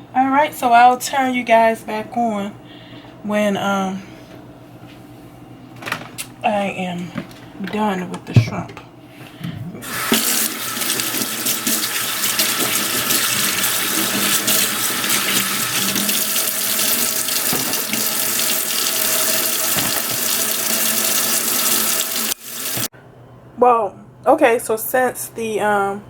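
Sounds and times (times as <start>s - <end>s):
faucet running into sink: 9.8s - 22.9s.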